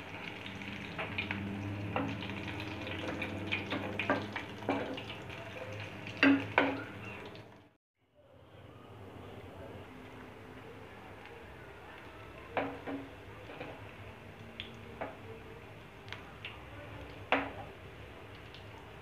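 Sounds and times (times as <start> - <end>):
cutlets sizzling in hot oil: 0.0 - 7.5.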